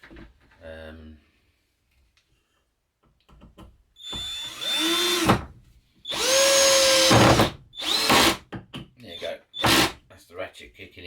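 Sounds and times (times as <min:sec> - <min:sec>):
cordless drill whining: 0:04.0 - 0:05.4, 0:06.1 - 0:08.4, 0:09.6 - 0:10.0.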